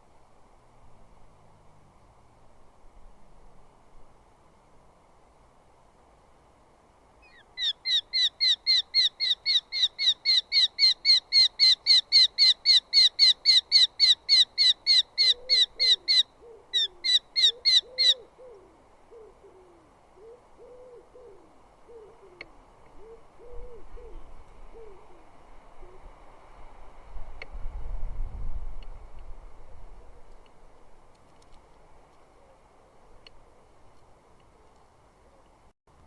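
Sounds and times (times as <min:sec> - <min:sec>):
falcon sharp high calls: 0:07.2 - 0:18.5
bird low hooting coos: 0:14.9 - 0:26.1, 0:29.6 - 0:30.9, 0:32.3 - 0:35.6.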